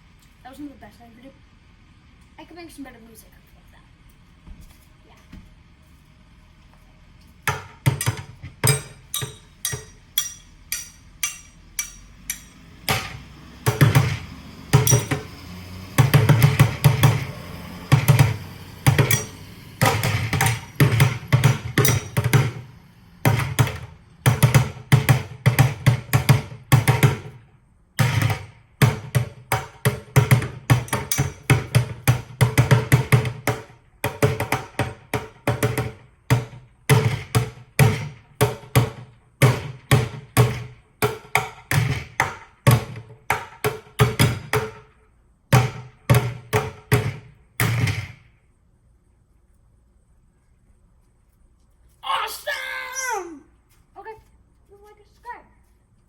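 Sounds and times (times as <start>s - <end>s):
drumsticks on buckets: 7.5s - 14.2s, 17.9s - 22.6s, 28.0s - 35.9s.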